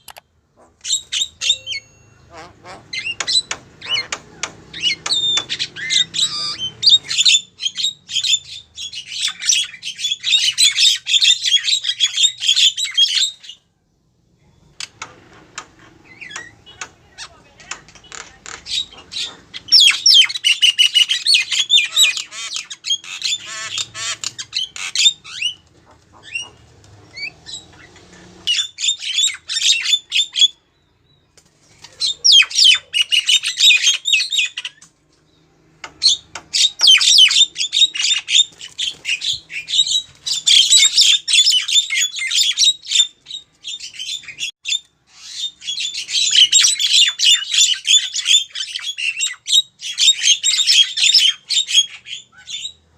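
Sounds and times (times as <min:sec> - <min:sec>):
myna squawks and chirps: 0:00.6 - 0:13.6, 0:18.4 - 0:30.6, 0:31.9 - 0:34.8, 0:36.0 - 0:43.1.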